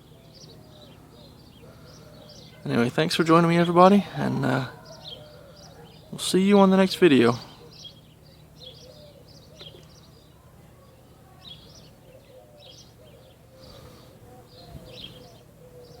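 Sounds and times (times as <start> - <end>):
small birds chirping: 0.0 - 16.0
soft low cooing: 10.4 - 16.0.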